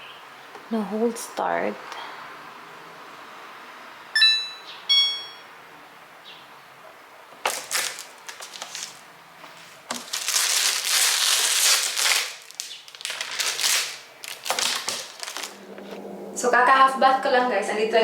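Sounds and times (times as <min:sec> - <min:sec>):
short electronic beeps: 0:04.2 - 0:05.6.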